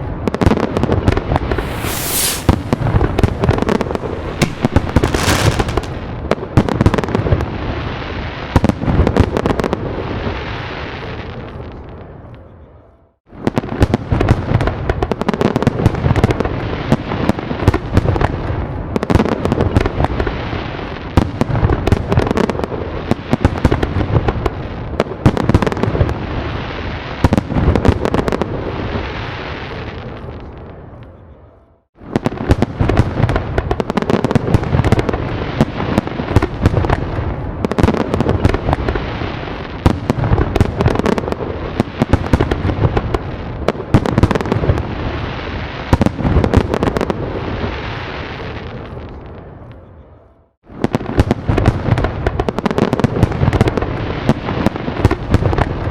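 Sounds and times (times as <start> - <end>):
fireworks banging and crackling: 0.0 - 11.6, 13.3 - 30.7, 32.0 - 49.6, 50.7 - 55.9.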